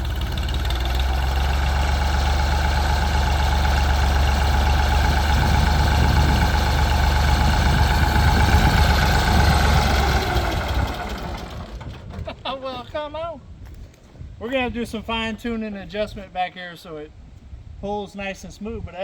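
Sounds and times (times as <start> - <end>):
tractor engine labouring: 0.0 - 13.0.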